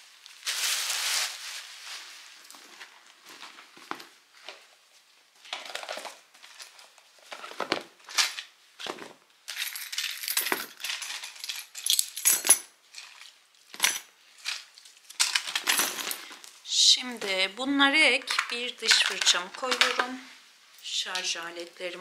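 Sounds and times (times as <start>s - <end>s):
small hard items clinking: 5.4s - 16.6s, 18.2s - 20.2s.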